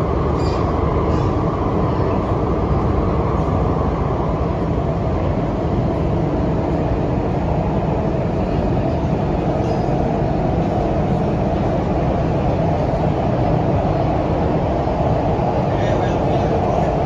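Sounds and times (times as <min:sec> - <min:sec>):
metro train cabin rumble: 0:00.0 - 0:17.0.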